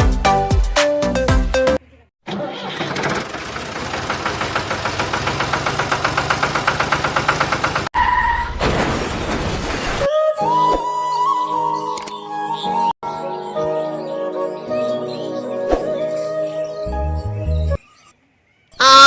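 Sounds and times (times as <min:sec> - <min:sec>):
music: 0:00.0 - 0:01.8, 0:10.1 - 0:17.8
engine chugging: 0:02.4 - 0:07.9.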